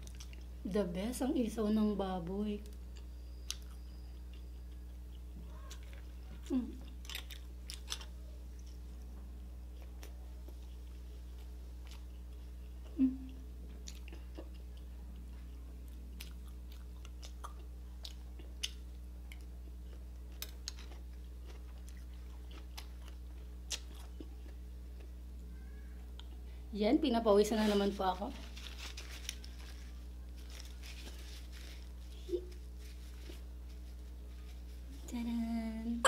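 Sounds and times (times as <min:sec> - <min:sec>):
person chewing close to microphone: 0:00.0 - 0:00.5, 0:02.9 - 0:25.2
steady low hum: 0:00.0 - 0:36.0
person humming: 0:06.4 - 0:06.8, 0:12.9 - 0:13.4.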